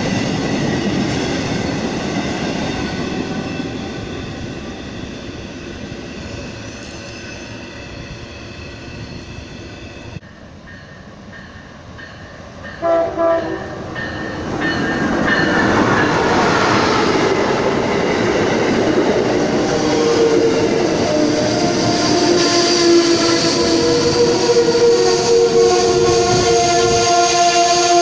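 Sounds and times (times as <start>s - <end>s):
train rumbling: 0.0s - 28.0s
locomotive horn blasts: 12.8s - 14.0s, 22.1s - 28.0s.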